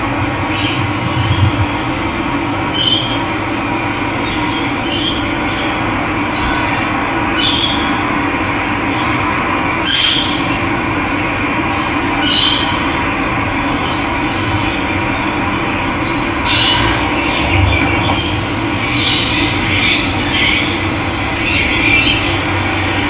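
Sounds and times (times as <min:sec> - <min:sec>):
bird call: 0:02.6 - 0:05.3.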